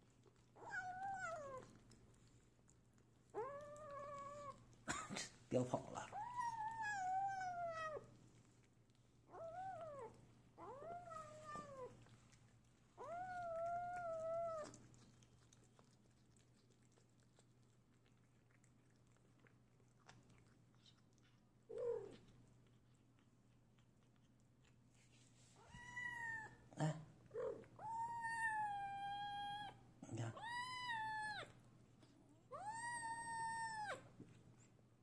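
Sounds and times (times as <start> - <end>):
kitten yowling: 0.6 - 1.7, 3.4 - 4.6, 6.1 - 8.0, 9.3 - 12.0, 13.0 - 14.8, 25.6 - 26.6, 27.4 - 29.8, 30.4 - 31.5, 32.5 - 34.1.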